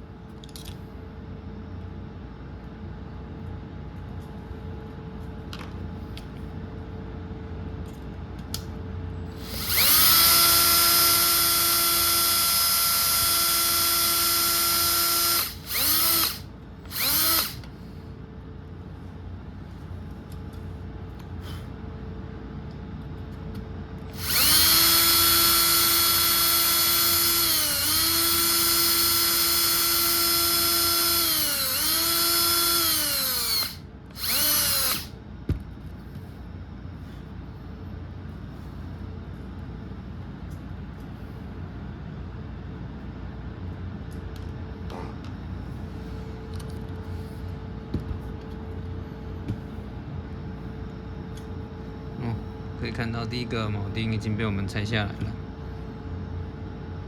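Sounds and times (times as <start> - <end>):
electric drill whining: 9.4 - 17.7, 24.1 - 35.2.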